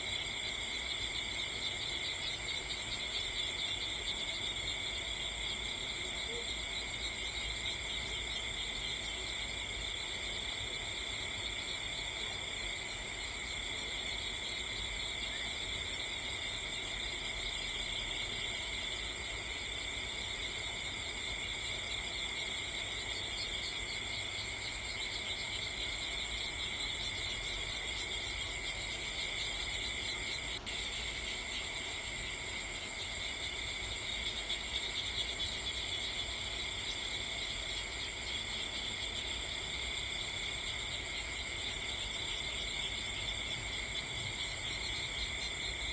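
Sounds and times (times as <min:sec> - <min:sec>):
insect chorus chirring: 0:00.0 - 0:45.9.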